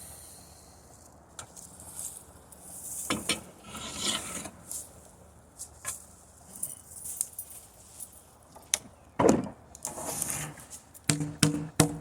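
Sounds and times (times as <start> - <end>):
sharp wooden knocks: 11.1 - 12.0.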